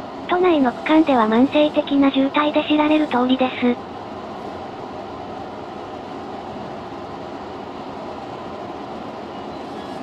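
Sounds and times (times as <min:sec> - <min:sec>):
electric train rumble: 0:00.0 - 0:10.0.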